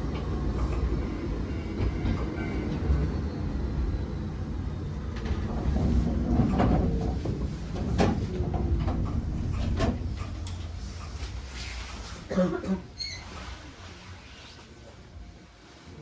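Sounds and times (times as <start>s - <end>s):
train clanks and knocks: 0.0s - 3.7s, 4.3s - 12.8s
electric train rumbling: 0.0s - 16.0s.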